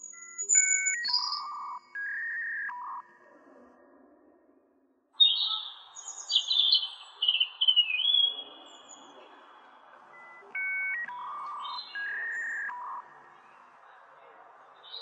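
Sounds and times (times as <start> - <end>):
bird-like chirps and whistles: 0.0 - 3.1, 5.2 - 9.0, 10.1 - 13.2.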